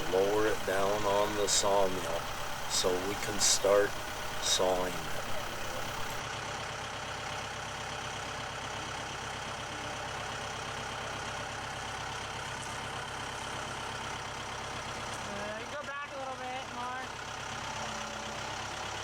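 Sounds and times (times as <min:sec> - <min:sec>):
engine idling: 0:00.0 - 0:15.2.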